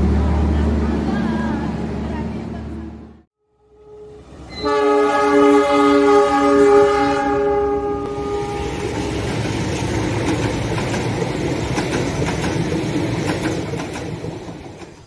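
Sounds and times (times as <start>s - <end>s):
passenger train rumbling past: 0.0s - 15.0s
train horn: 3.4s - 8.9s
wheels clicking over rail joints: 9.2s - 15.0s.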